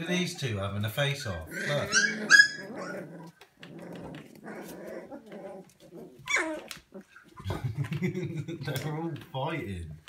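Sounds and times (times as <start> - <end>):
puppies growling: 1.4 - 7.8
puppy crying: 1.5 - 7.4.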